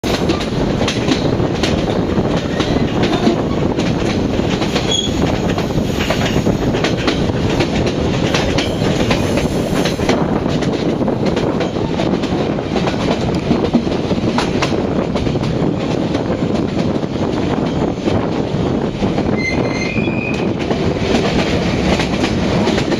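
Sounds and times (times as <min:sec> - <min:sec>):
train rumbling on track: 0:00.0 - 0:22.9
wheels clicking over rails: 0:00.1 - 0:19.3, 0:20.3 - 0:22.9.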